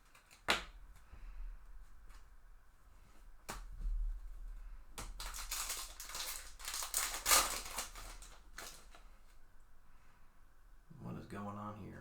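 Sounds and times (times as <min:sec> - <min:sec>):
foil pack tearing: 0:05.0 - 0:09.0
wrapper crinkling: 0:05.0 - 0:09.4.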